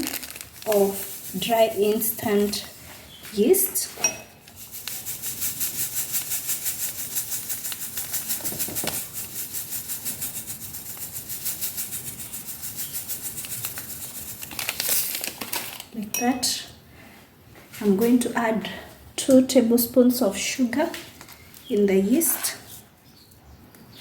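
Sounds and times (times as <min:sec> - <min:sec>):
yeast granules rattling: 0:00.0 - 0:02.7, 0:04.6 - 0:15.9.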